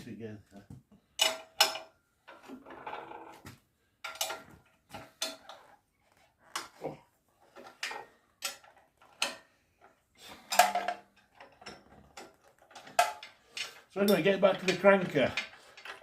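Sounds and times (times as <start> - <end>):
metal parts clattering into a tin: 4.1 - 4.4, 10.4 - 16.0.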